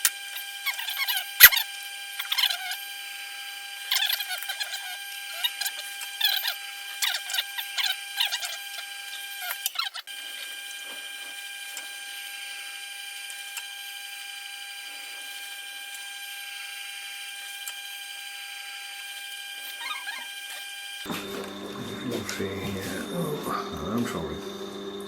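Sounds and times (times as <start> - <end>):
sharpener motor hum: 0.0 - 25.0
blade scraping on stone: 0.3 - 2.9, 3.8 - 12.5, 18.8 - 23.2.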